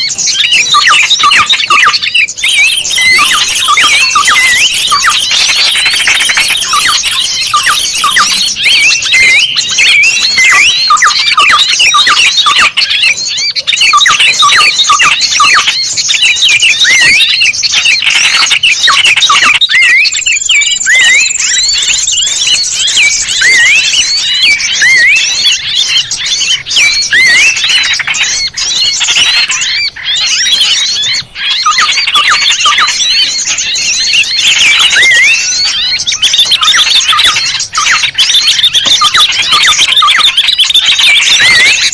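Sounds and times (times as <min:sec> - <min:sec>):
small birds chirping and squeaking: 0:00.0 - 0:41.9
thin high whistle: 0:02.4 - 0:09.4.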